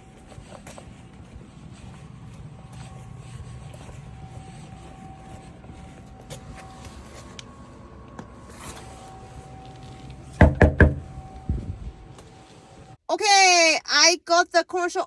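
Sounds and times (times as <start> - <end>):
knocking on a door: 10.4 - 11.1.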